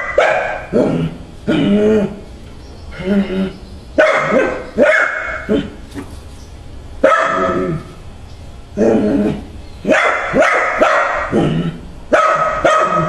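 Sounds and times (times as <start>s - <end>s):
dog barking: 0.0s - 0.9s, 4.0s - 5.7s, 7.0s - 7.8s, 9.9s - 11.4s, 12.1s - 13.0s.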